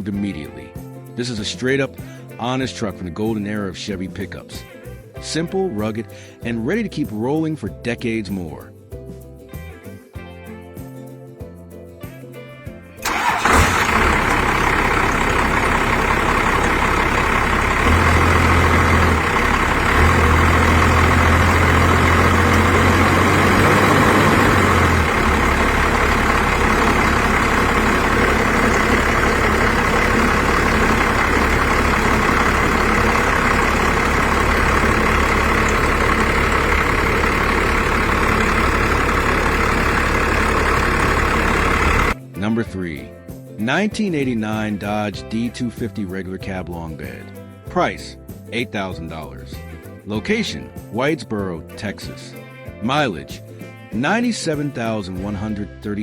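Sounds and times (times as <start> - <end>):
car engine starting and idling: 13.0 - 42.2.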